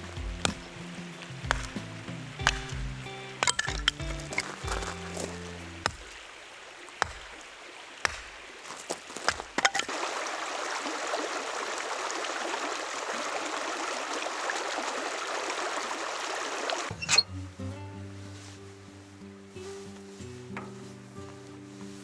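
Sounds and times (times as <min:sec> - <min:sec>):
water running: 0:00.0 - 0:17.2.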